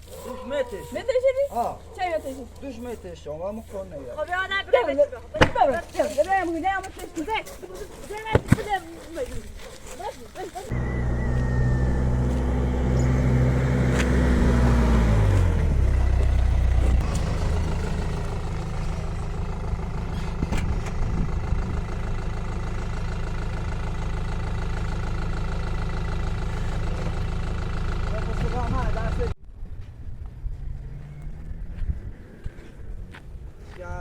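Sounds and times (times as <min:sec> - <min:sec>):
vehicle engine running: 0:10.7 - 0:33.2.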